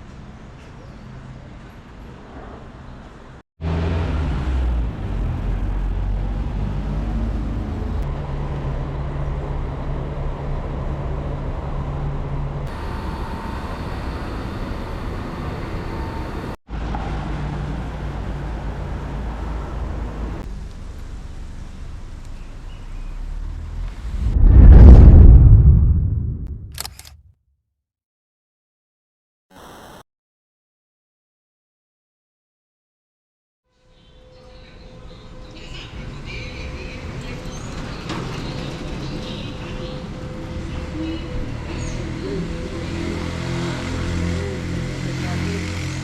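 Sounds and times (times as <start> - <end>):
road noise: 0.0 - 27.1, 35.0 - 46.0
vehicle engines humming: 3.6 - 24.2, 35.7 - 46.0.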